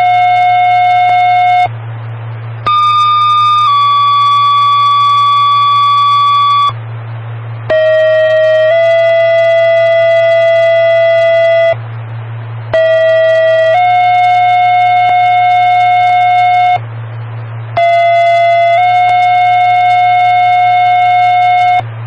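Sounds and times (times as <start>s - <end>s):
two-tone pager alert tones: 0.0s - 1.7s, 2.7s - 6.7s, 7.7s - 11.8s, 12.8s - 16.8s.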